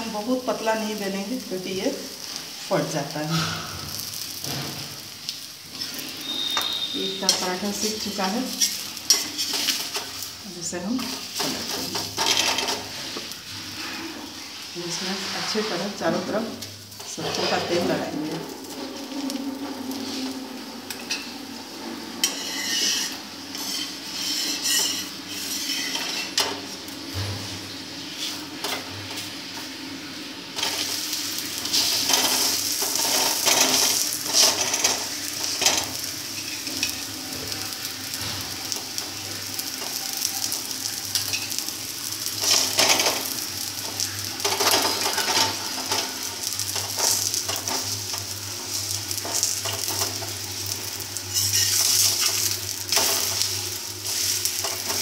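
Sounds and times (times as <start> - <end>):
oil sizzling in a pan: 0.0 - 55.0
steel spoon scraping a pan: 5.7 - 16.4, 17.0 - 21.4, 22.1 - 26.7, 30.6 - 40.3, 40.9 - 50.4, 51.2 - 55.0.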